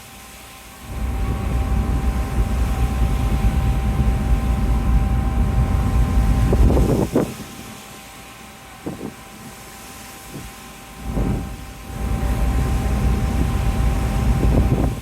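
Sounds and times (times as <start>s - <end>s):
wind buffeting microphone: 0.8s - 7.6s, 10.4s - 15.0s
ferry engine hum: 0.8s - 15.0s.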